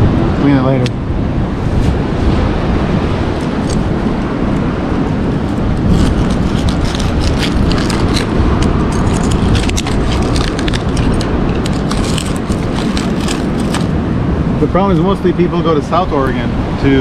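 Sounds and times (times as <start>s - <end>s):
ocean surf roar: 0.0s - 17.0s
wind buffeting microphone: 0.0s - 17.0s
sharp clicks and crackles: 5.5s - 13.9s.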